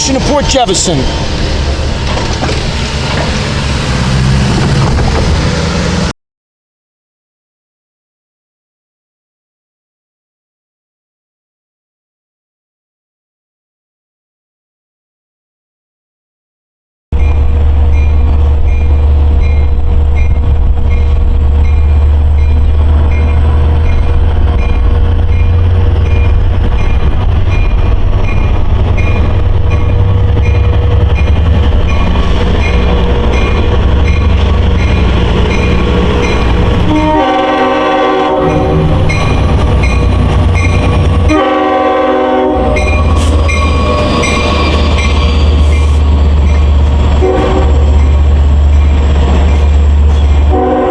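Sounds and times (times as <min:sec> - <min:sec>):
diesel locomotive passing: 0:00.0 - 0:06.1, 0:17.2 - 0:50.9
crossing bell dinging: 0:17.2 - 0:37.2, 0:38.4 - 0:41.5, 0:42.6 - 0:46.9
locomotive horn blasts: 0:36.8 - 0:39.0, 0:41.2 - 0:44.8, 0:47.2 - 0:47.9, 0:50.5 - 0:50.9.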